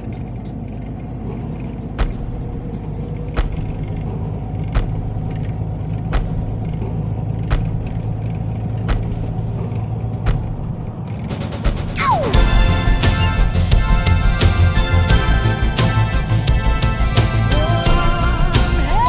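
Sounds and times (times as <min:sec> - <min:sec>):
sharp knocks: 0:02.0 - 0:02.8, 0:03.4 - 0:12.4.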